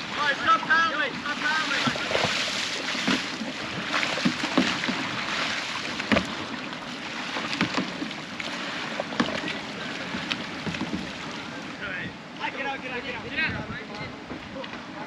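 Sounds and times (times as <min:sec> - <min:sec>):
kayak paddles splashing water: 0:00.0 - 0:15.0
paddle knocks: 0:00.6 - 0:11.5.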